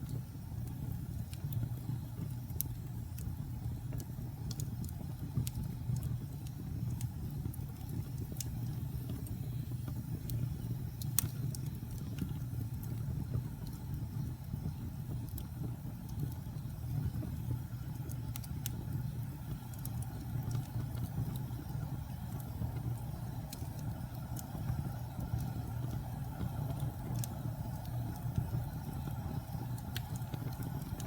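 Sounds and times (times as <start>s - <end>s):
fire crackles and pops: 0.0s - 31.0s
fire rumble: 0.0s - 31.0s.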